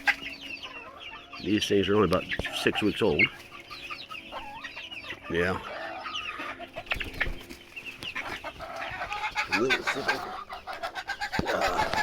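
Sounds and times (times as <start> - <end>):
chickens clucking and calling: 0.0 - 12.0.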